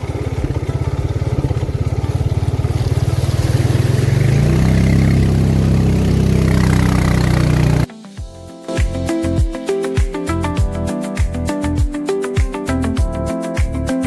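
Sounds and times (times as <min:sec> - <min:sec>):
vehicle engine running: 0:00.0 - 0:07.9.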